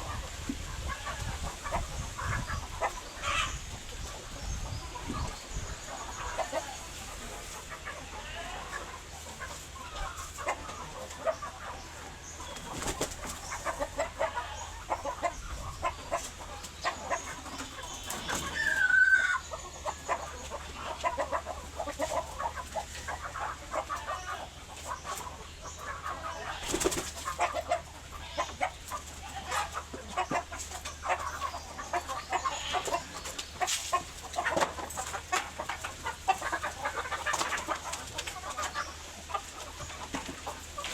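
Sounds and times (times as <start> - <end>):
chickens clucking: 0.0 - 40.9
wings flapping: 12.6 - 13.4, 26.6 - 27.3.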